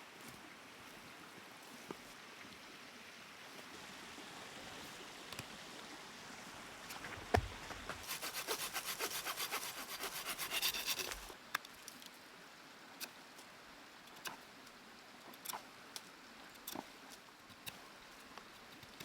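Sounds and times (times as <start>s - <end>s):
hand saw cutting wood: 7.9s - 11.4s.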